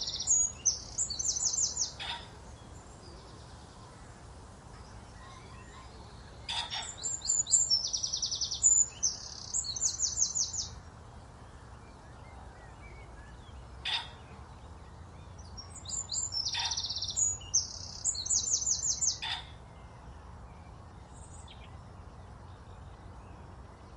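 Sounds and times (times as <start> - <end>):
songbird trilling: 0.0 - 2.4, 5.2 - 10.8, 15.2 - 19.6.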